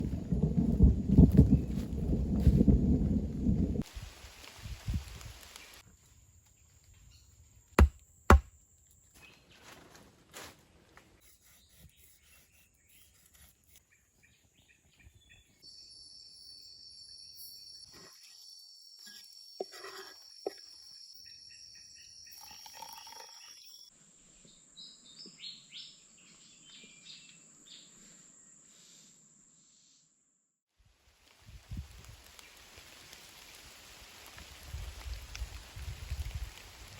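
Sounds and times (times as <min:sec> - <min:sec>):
insects droning: 0:15.7 - 0:24.0.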